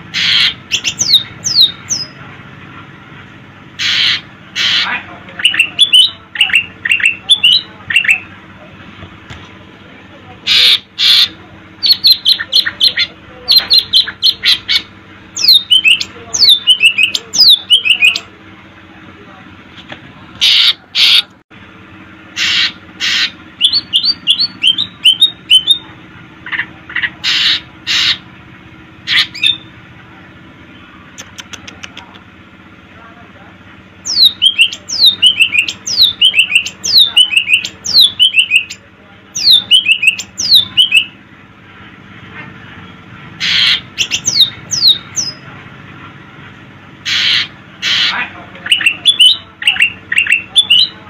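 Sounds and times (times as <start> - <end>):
bird chattering and whistling: 0.1 - 2.2, 3.8 - 8.4, 10.4 - 18.3, 20.4 - 21.3, 22.3 - 28.3, 29.0 - 29.7, 30.7 - 32.3, 34.0 - 41.2, 43.4 - 45.5, 47.0 - 51.0.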